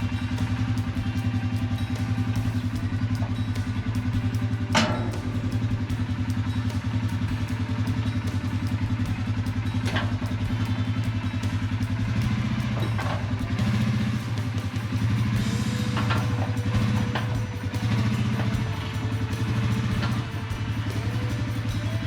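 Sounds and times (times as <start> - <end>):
atv engine idling: 0.0 - 22.0.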